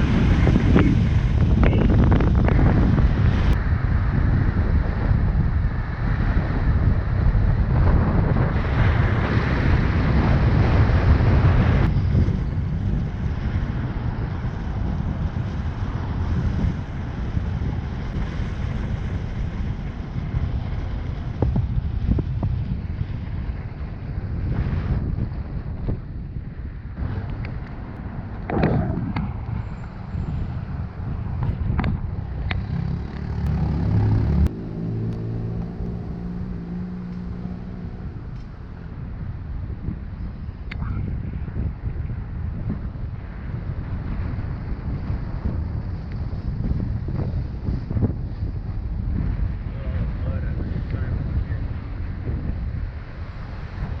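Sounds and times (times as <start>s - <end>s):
vehicle engine rumbling: 0.0s - 54.0s
wind buffeting microphone: 0.0s - 54.0s.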